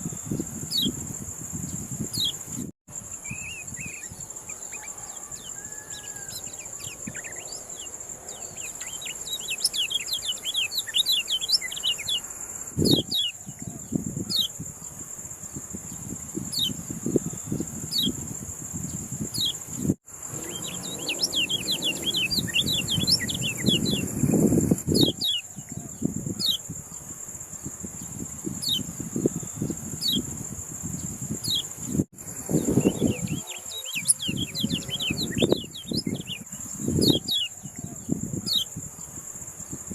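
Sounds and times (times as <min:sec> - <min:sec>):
songbird chirping: 0:03.1 - 0:14.7, 0:18.9 - 0:39.2
shrill insect-like drone: 0:15.6 - 0:25.0, 0:26.0 - 0:37.2.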